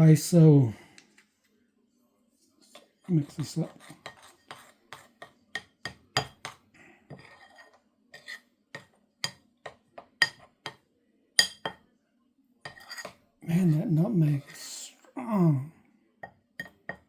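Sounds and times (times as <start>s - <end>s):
spoon scraping stir: 2.6s - 5.4s, 6.2s - 8.5s, 12.7s - 14.8s
spoon clinking against container: 10.2s - 10.5s, 11.4s - 11.8s, 16.6s - 17.0s.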